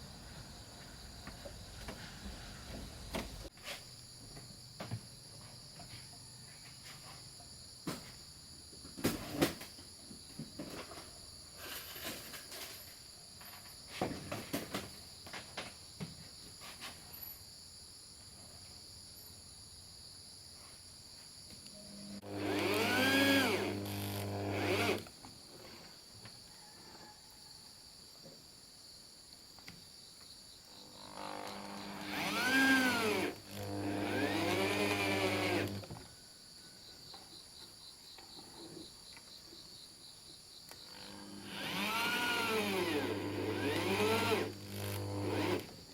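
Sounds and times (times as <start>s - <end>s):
insects droning: 0.0s - 45.9s
power tool motor running: 22.2s - 25.1s, 30.8s - 35.9s, 40.9s - 45.8s.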